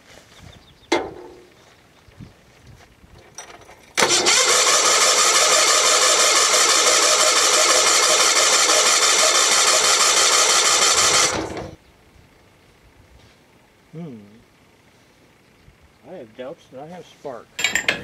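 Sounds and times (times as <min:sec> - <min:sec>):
engine cranking on starter: 0:04.0 - 0:11.8.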